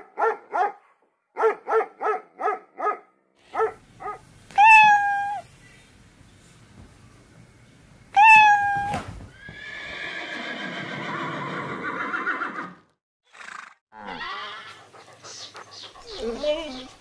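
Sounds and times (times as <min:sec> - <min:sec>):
horse whinnying: 0:08.2 - 0:14.8.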